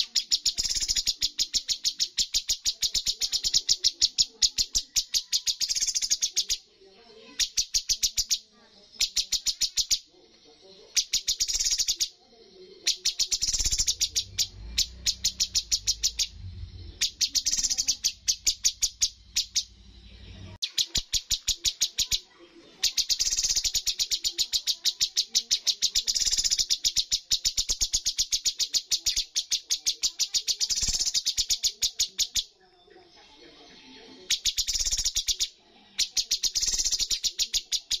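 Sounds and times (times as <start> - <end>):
songbird calling in rapid trains: 0.0 - 6.6, 12.8 - 32.5, 34.2 - 38.0
low hum: 14.2 - 17.2.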